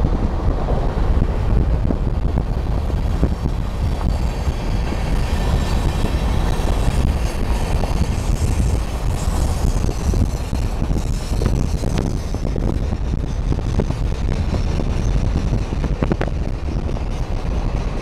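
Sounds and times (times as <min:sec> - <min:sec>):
freight train rumbling: 0:00.0 - 0:18.0
wind on microphone: 0:00.0 - 0:18.0.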